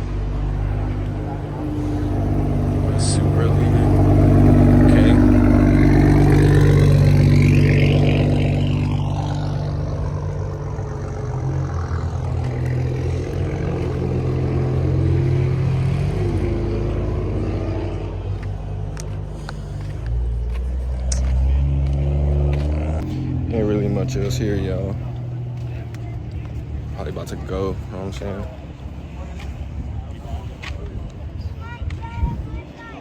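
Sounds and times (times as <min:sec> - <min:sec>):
car engine running: 0:00.0 - 0:32.9.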